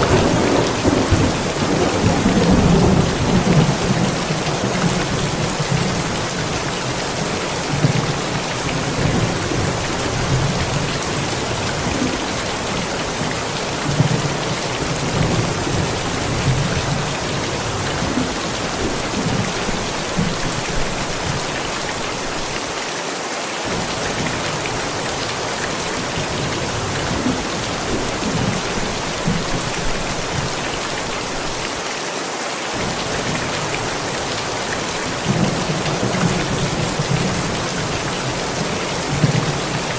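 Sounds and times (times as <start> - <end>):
low thunder rumbling: 0.0 - 21.6
heavy rain falling: 0.0 - 39.9.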